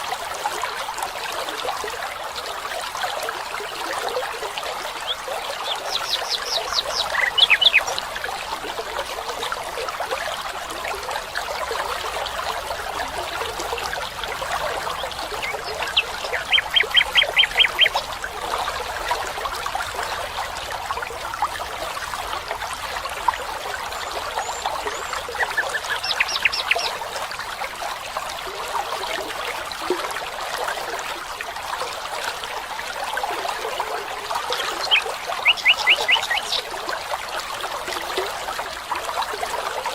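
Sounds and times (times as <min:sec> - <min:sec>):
stream water running: 0:00.0 - 0:39.9
bird trilling: 0:05.0 - 0:07.9, 0:15.6 - 0:17.9, 0:25.4 - 0:26.9, 0:34.6 - 0:36.6.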